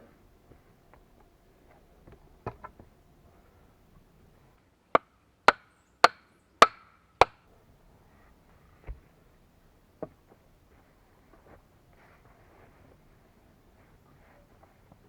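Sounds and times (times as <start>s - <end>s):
axe chopping wood: 5.0s - 7.4s.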